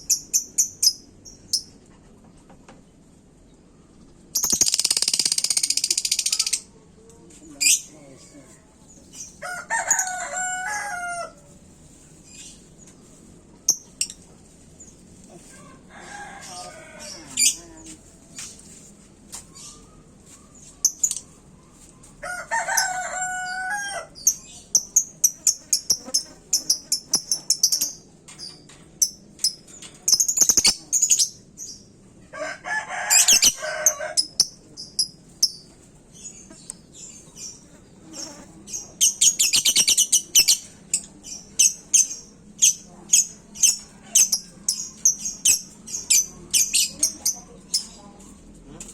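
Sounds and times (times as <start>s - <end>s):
lovebird chattering in high chirps: 4.4s - 6.7s, 24.2s - 31.9s, 38.2s - 48.0s.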